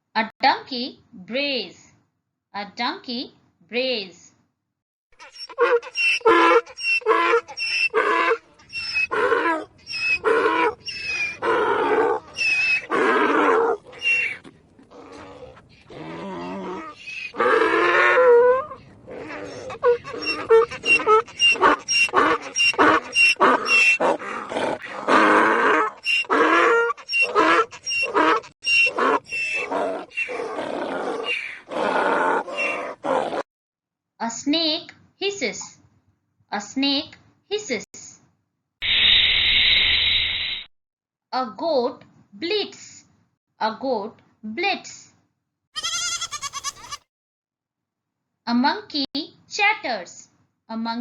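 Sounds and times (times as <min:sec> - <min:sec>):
donkey braying: 0:05.2 - 0:33.4, 0:45.8 - 0:47.0.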